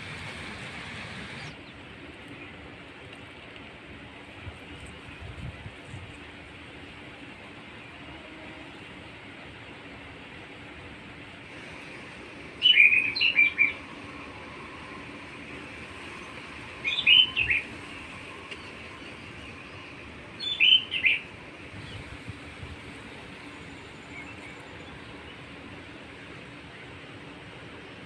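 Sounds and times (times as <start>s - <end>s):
steady background hiss: 0.0s - 28.0s
songbird chirping: 12.6s - 21.3s.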